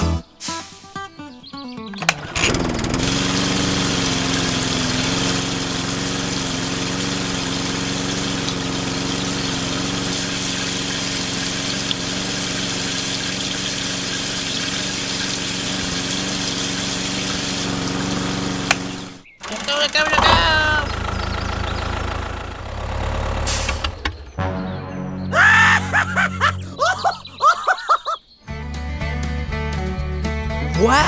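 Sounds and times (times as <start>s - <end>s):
small motor humming: 2.0s - 24.4s.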